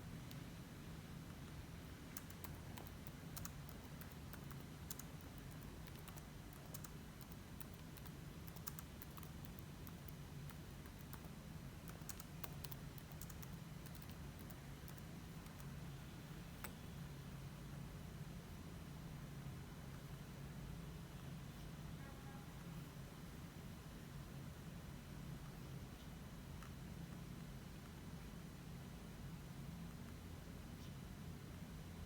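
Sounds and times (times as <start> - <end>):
steady low hum: 0.0 - 32.0
keyboard typing: 2.1 - 15.8.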